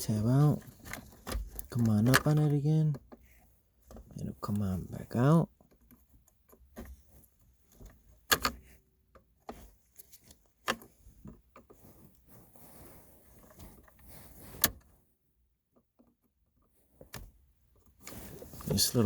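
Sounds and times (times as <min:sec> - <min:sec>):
handling noise: 0:00.2 - 0:04.4.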